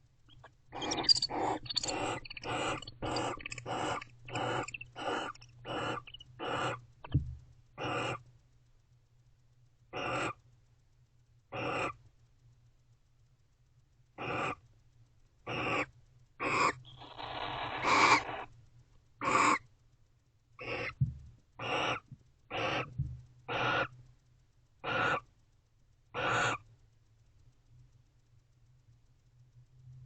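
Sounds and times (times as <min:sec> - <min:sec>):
owls making raspy hissing calls: 0:00.3 - 0:06.9, 0:07.8 - 0:08.2, 0:09.9 - 0:10.4, 0:11.5 - 0:12.0, 0:14.2 - 0:14.6, 0:15.5 - 0:18.5, 0:19.2 - 0:19.6, 0:20.6 - 0:21.0, 0:21.6 - 0:23.9, 0:24.8 - 0:25.3, 0:26.2 - 0:26.6.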